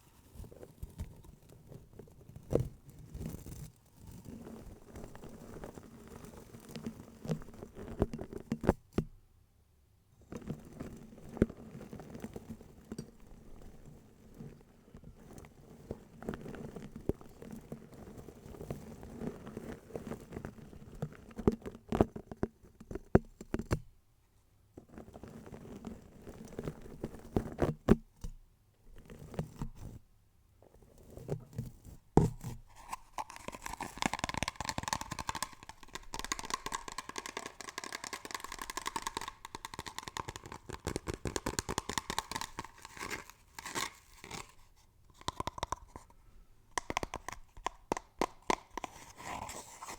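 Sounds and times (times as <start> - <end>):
crinkling handling noise: 32.5 - 49.9.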